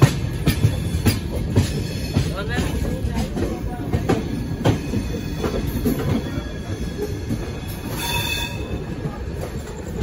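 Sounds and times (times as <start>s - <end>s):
train rumbling on track: 0.0s - 10.0s
high-pitched wheel squeal: 7.7s - 8.8s.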